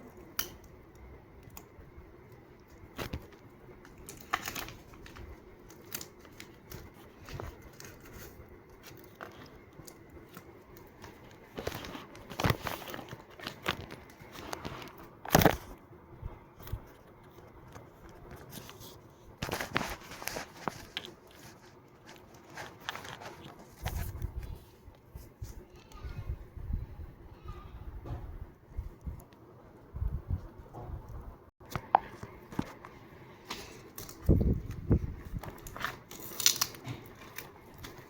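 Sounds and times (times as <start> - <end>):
paper crinkling and tearing: 2.8 - 15.8, 16.6 - 25.7, 33.5 - 38.0.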